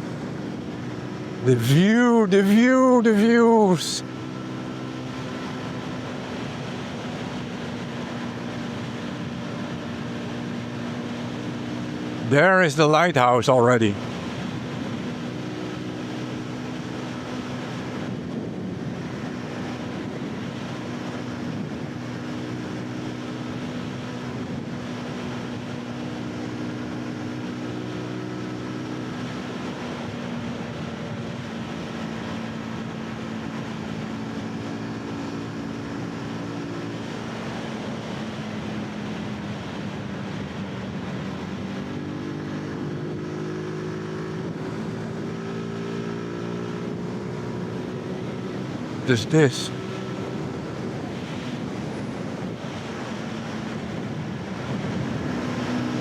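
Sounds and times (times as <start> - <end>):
wind noise: 17.6 - 22.3, 50.3 - 56.0.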